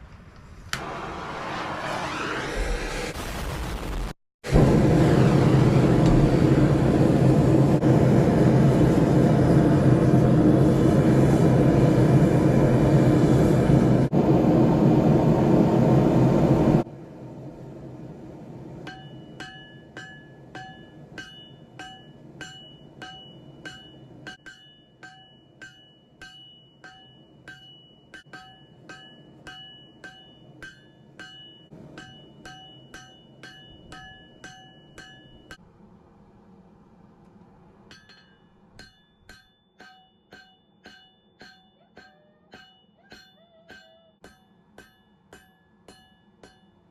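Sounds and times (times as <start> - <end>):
loud steady roar: 4.5 - 18.8
hammer ringing on anvil: 18.8 - 35.6, 37.9 - 46.9.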